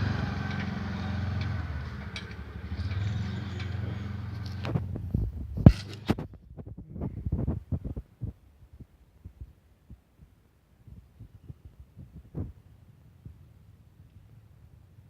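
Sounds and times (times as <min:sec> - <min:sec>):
vehicle engine humming: 0:00.0 - 0:07.3.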